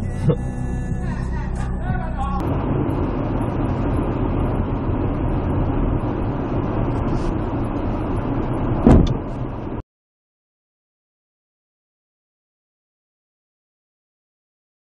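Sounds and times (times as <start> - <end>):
road and engine noise: 0.0 - 9.8
loud collision bang: 8.8 - 9.4.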